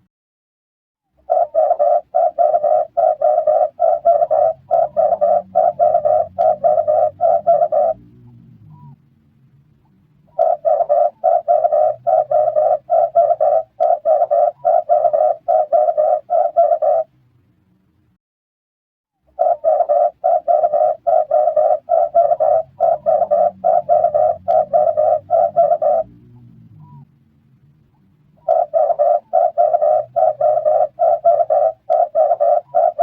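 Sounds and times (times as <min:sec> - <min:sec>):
dove cooing: 0:01.2 - 0:09.0, 0:10.3 - 0:17.1, 0:19.3 - 0:27.1, 0:28.4 - 0:33.0.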